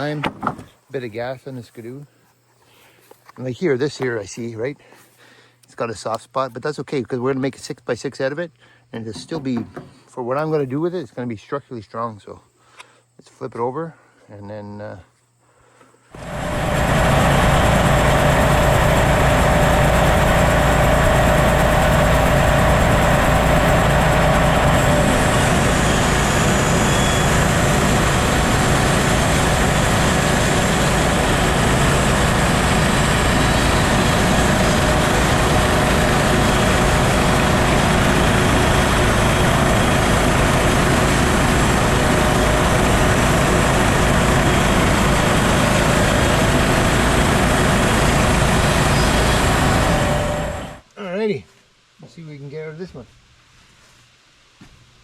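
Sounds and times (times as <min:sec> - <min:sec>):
gas engine running: 0:16.2 - 0:50.8.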